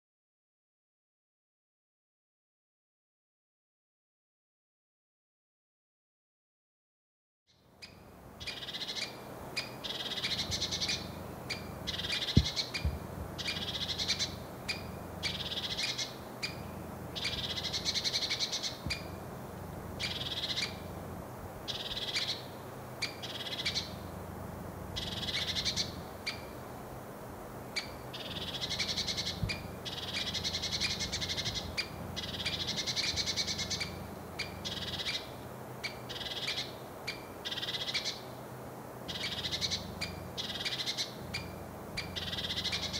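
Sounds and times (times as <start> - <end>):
woodpecker alarm call: 7.8 - 19.2, 20.0 - 20.9, 21.6 - 24.1, 25.0 - 26.6, 27.7 - 38.4, 39.1 - 42.9.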